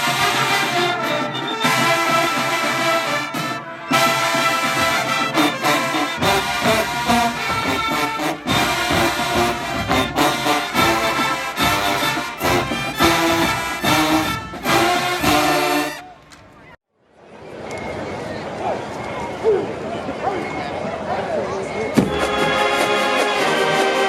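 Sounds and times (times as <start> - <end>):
percussion hits: 0.0 - 16.1, 22.0 - 24.0
marching band brass playing: 0.0 - 16.2, 22.0 - 24.0.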